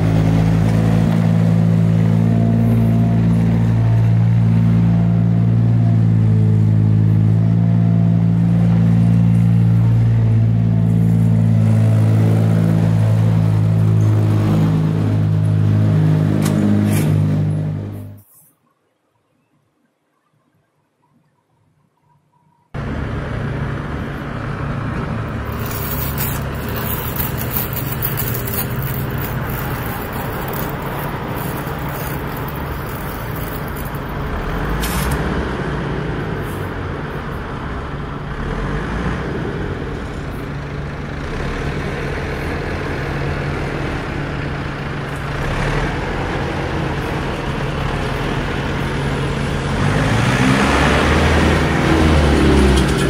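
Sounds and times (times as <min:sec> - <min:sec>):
traffic: 0:00.0 - 0:18.5, 0:22.7 - 0:53.0
vehicle engine running: 0:22.8 - 0:34.8.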